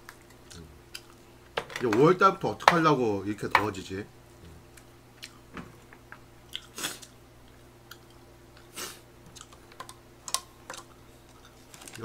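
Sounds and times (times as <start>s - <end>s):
low hum: 3.0s - 6.5s
chewing food: 6.5s - 8.7s.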